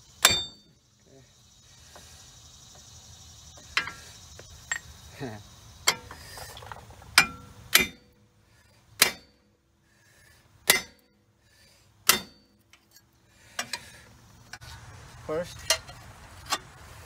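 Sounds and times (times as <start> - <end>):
hammer striking metal: 0.2 - 0.7, 7.2 - 8.2, 9.0 - 9.4, 10.6 - 11.1, 12.0 - 12.6.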